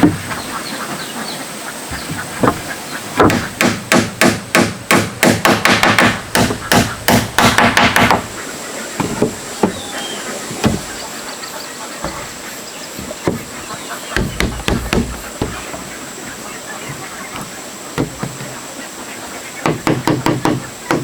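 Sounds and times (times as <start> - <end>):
hammer nailing into wood: 3.2 - 8.3, 14.2 - 15.6, 19.6 - 21.0.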